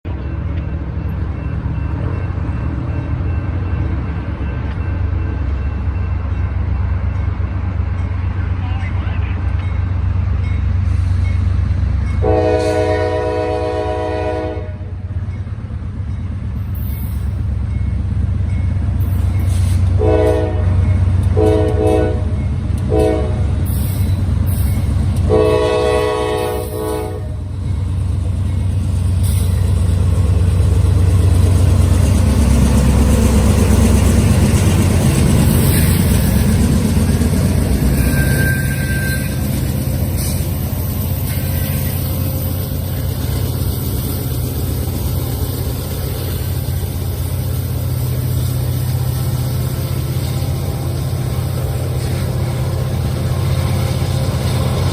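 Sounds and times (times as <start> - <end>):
train wheels on rail: 0.1 - 54.9
train air horn blasts: 12.2 - 14.9, 19.7 - 23.5, 25.2 - 27.4.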